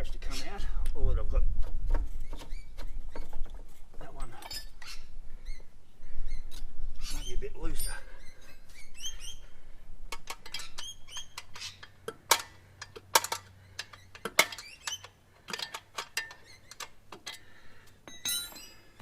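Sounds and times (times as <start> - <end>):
metallic clinks of wrenches and parts: 4.2 - 4.7, 10.1 - 19.0.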